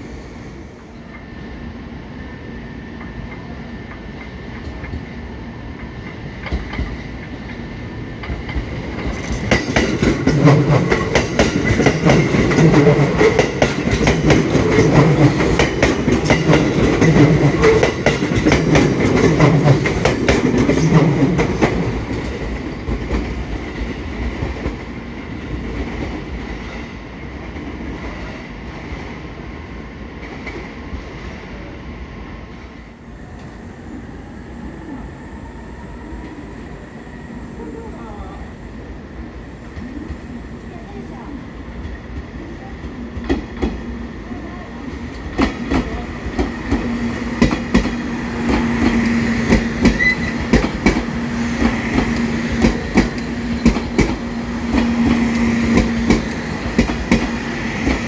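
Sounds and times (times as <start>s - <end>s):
train wheels clicking over rail joints: 5.8s - 24.9s, 41.8s - 43.9s, 44.9s - 58.0s.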